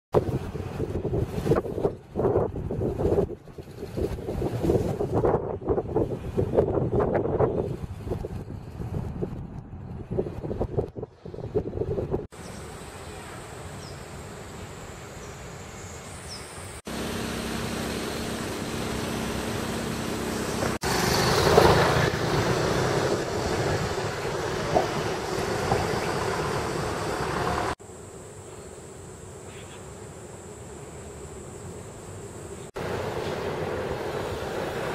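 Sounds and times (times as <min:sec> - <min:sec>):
distant road traffic: 0:12.4 - 0:28.0, 0:30.9 - 0:34.9.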